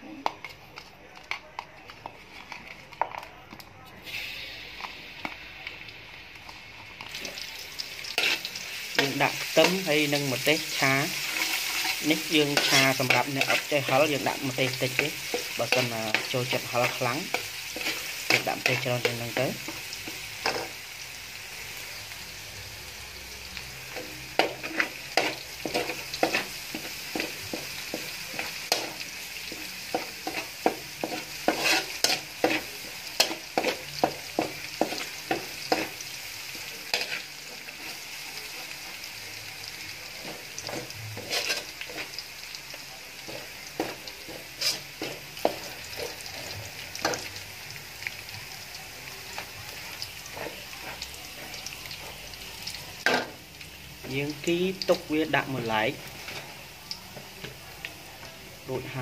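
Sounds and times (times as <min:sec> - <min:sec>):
food sizzling in oil: 0:03.9 - 0:59.0
metal turner scraping a wok: 0:06.9 - 0:20.8, 0:23.9 - 0:38.0, 0:40.1 - 0:42.2, 0:43.2 - 0:47.3.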